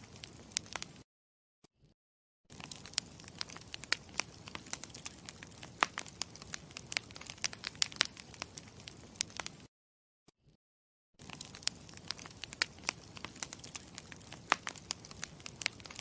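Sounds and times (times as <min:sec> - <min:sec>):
campfire crackling and popping: 0:00.0 - 0:01.0, 0:02.5 - 0:09.7, 0:11.2 - 0:16.0.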